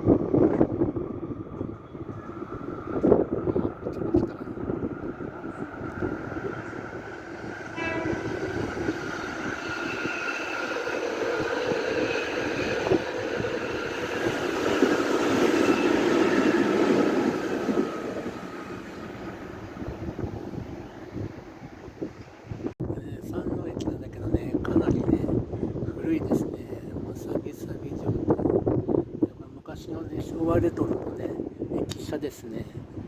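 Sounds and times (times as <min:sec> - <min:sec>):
electric train passing: 0:00.0 - 0:22.7.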